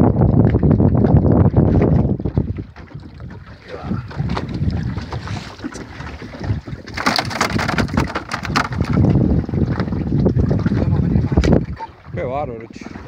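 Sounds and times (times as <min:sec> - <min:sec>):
wind buffeting microphone: 0:00.0 - 0:13.0
rustling and clattering: 0:06.9 - 0:09.1.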